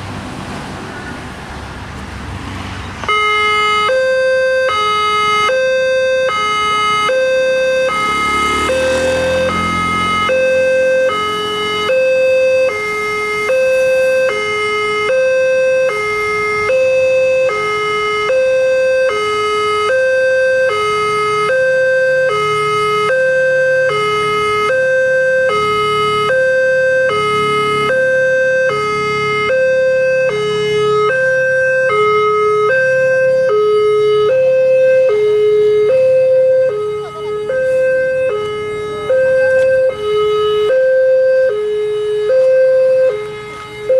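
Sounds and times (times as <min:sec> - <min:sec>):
level crossing two-tone alarm: 0:03.1 - 0:43.9.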